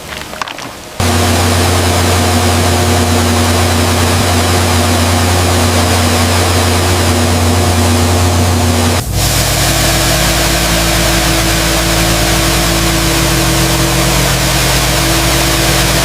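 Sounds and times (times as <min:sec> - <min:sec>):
engine droning: 0:00.0 - 0:16.0
even hiss: 0:00.0 - 0:16.0.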